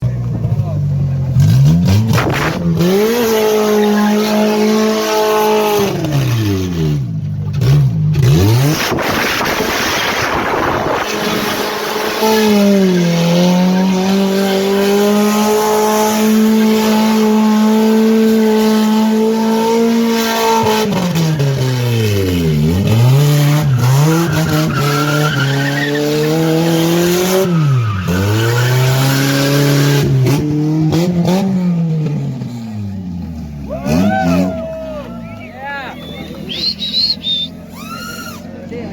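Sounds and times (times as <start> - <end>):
car engine revving high: 0.4 - 35.0
tyres squealing: 23.5 - 29.9, 33.7 - 38.6.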